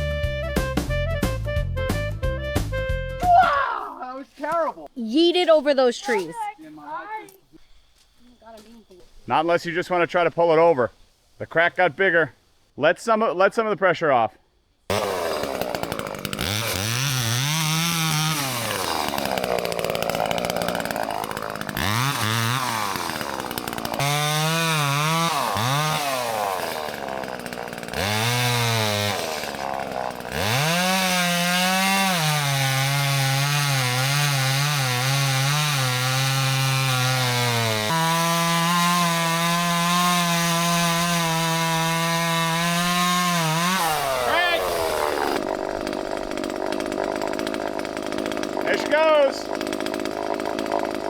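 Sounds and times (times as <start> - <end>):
chainsaw cutting tree trunk: 14.9 - 51.0.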